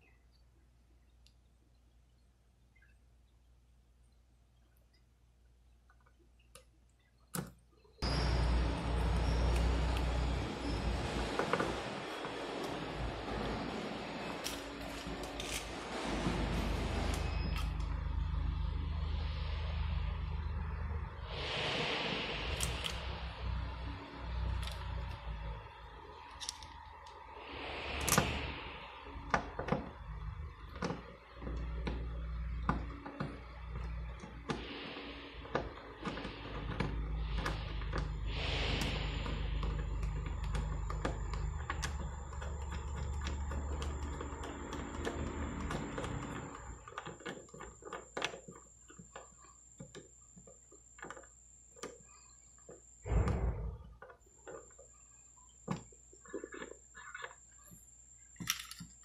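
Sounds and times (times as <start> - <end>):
short hissing rustles: 21.2 - 24.5, 34.6 - 40.2
thump and rustle: 53.1 - 53.9.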